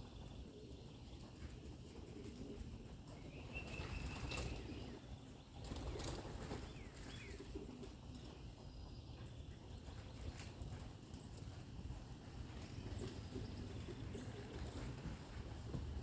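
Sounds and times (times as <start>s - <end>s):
pigeon wings flapping: 5.6s - 7.1s.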